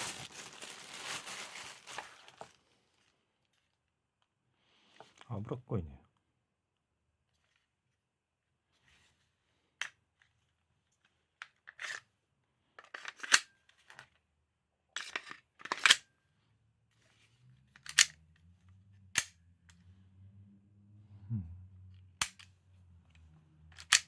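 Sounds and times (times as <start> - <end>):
airsoft pistol clacks and snaps: 17.8 - 18.2, 22.2 - 22.5.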